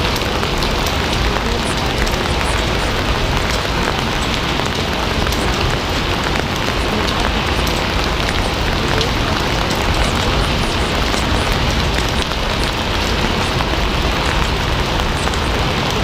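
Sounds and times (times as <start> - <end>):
drops ticking: 0.0 - 16.0
heavy rain hiss: 0.0 - 16.0.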